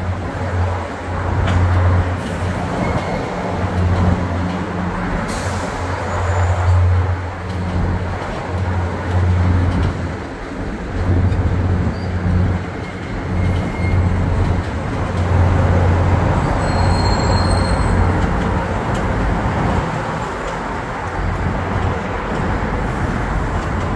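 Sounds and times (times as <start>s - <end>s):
train rumbling on tracks: 0.0s - 23.9s.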